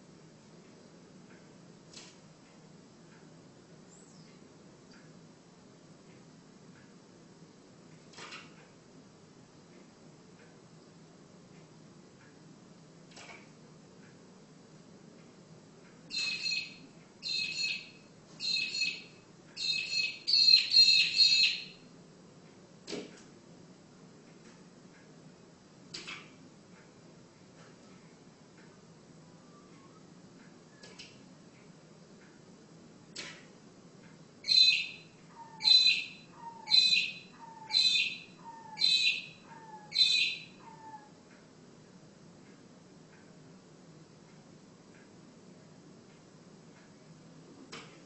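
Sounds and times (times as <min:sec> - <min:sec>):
bird calling: 0:16.1 - 0:21.8, 0:34.4 - 0:41.1.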